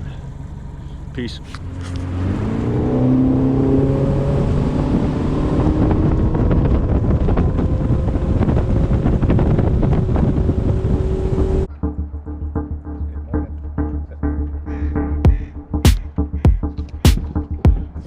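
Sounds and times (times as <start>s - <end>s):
outboard motor accelerating: 0.0s - 11.7s
wind buffeting microphone: 1.6s - 11.7s.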